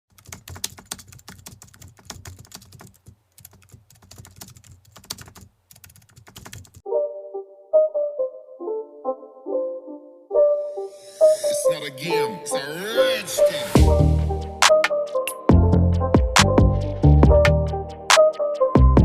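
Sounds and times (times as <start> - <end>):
computer keyboard typing: 0.1 - 6.8
melodic music intro: 6.8 - 19.0.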